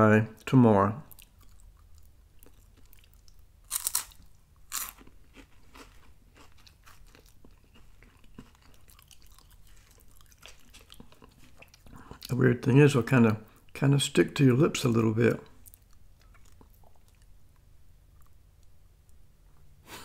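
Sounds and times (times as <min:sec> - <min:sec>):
soft quiet chewing: 0:00.4 - 0:12.4, 0:15.3 - 0:19.7
wafer cookies crunching: 0:01.0 - 0:12.4.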